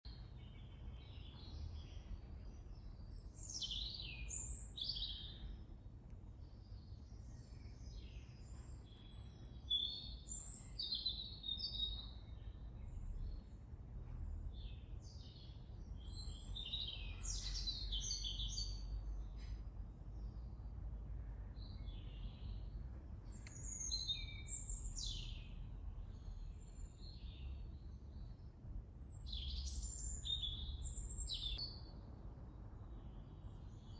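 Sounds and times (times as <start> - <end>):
garden birds singing: 0.0 - 33.9
steady low rumble: 18.8 - 33.9.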